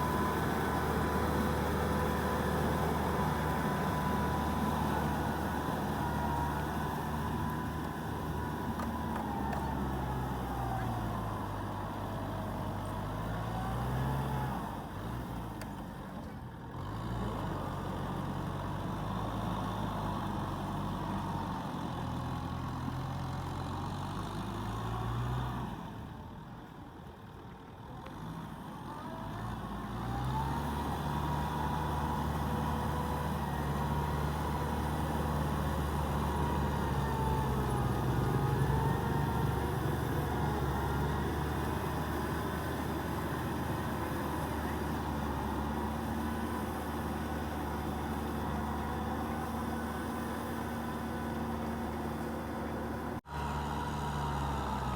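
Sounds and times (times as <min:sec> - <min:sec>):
tractor diesel engine running: 0:00.0 - 0:15.3, 0:29.6 - 0:54.9.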